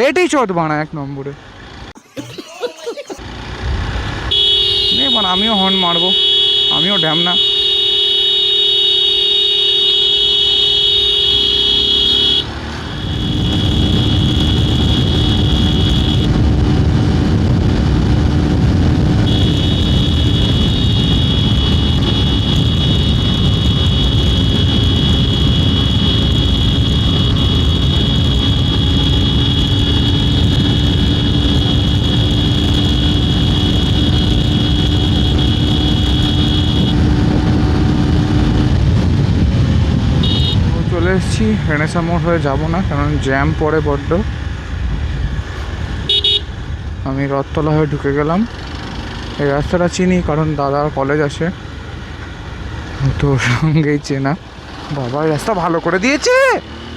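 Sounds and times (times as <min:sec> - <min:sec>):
motorcycle engine rumble: 0:01.4 - 0:56.9
steady buzzing tone: 0:07.4 - 0:16.4, 0:19.2 - 0:37.4.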